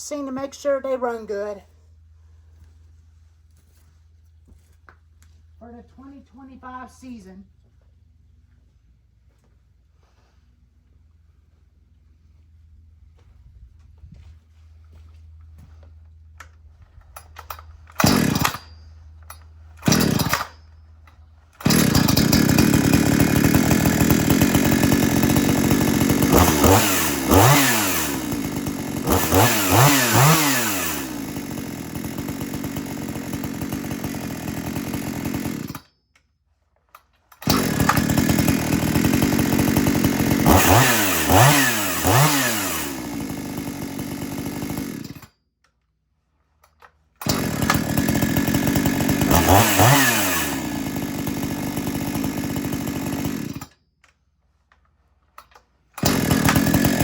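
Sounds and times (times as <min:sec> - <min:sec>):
chainsaw starting and revving: 0:17.2 - 0:35.9, 0:37.3 - 0:45.4, 0:46.4 - 0:53.8, 0:54.5 - 0:57.0.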